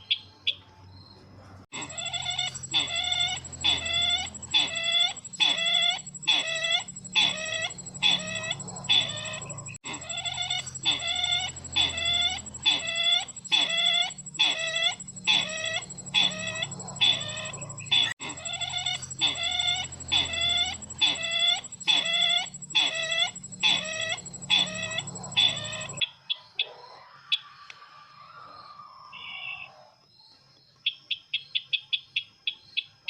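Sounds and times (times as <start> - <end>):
faint bird chirps: 0.0 - 26.7
recorded bird call: 0.0 - 30.0
electronic hum: 1.7 - 26.0.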